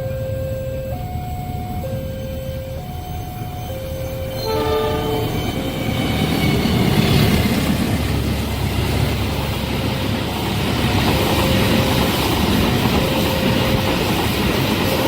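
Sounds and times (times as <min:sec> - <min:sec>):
train rumbling past: 0:00.0 - 0:15.0
train wheels clickety-clack: 0:04.6 - 0:15.0.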